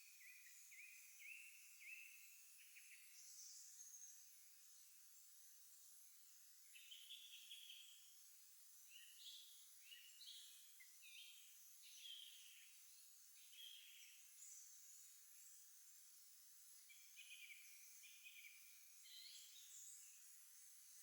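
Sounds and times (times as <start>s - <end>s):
songbirds singing faintly: 0.0s - 21.0s.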